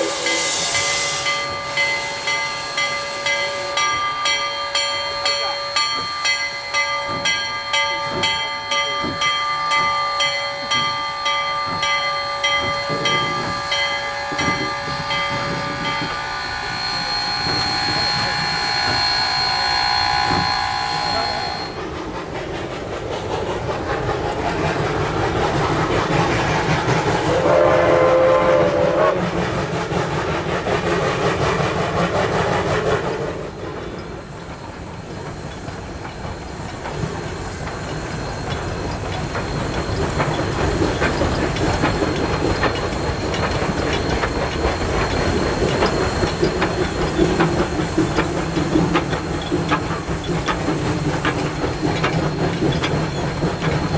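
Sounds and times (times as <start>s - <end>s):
steam locomotive whistle: 0.0s - 6.3s, 9.0s - 21.8s, 27.1s - 29.9s
train rumbling on rails: 0.0s - 53.9s.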